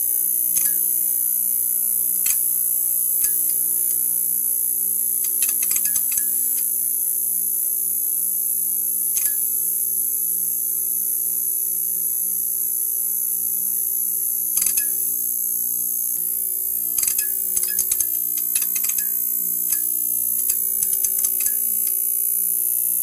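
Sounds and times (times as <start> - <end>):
neon sign buzzing: 0.0 - 6.9, 14.6 - 23.0
crackling clicks: 2.2 - 2.5, 5.2 - 6.7, 17.0 - 19.1, 19.7 - 22.0.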